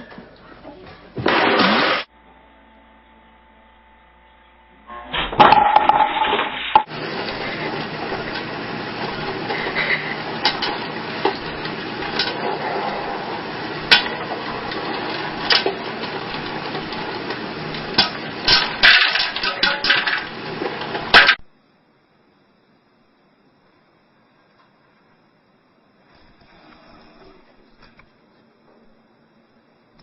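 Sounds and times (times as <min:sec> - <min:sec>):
steady background noise: 0:06.6 - 0:30.0
dishes and utensils clinking: 0:09.2 - 0:12.7, 0:13.7 - 0:21.4.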